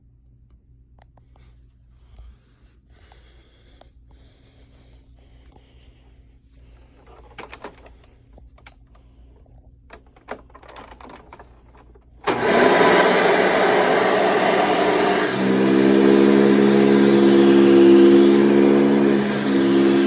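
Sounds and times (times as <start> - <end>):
handling clicks and knocks: 7.0 - 12.4
vacuum cleaner motor running: 10.0 - 20.0.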